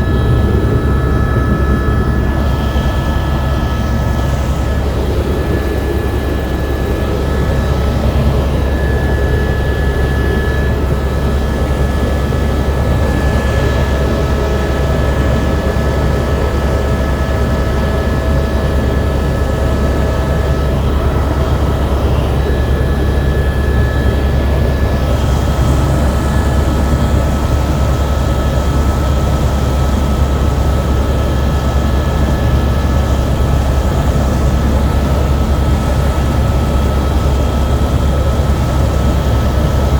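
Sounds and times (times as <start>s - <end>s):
high whine: 0.0s - 29.4s
helicopter rotor and engine drone: 0.0s - 39.9s.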